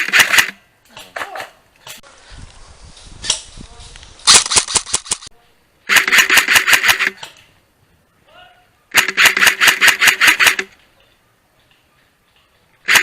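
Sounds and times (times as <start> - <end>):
airsoft rifle bursts: 5.9 - 7.2, 8.9 - 10.7.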